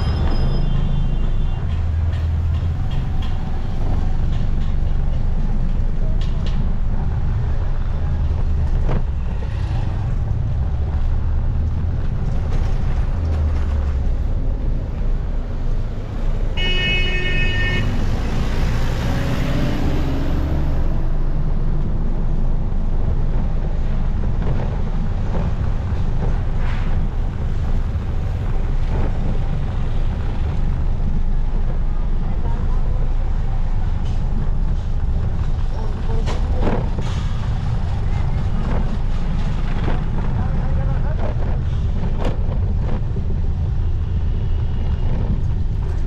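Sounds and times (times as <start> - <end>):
vehicle horn honking: 16.6 - 18.0.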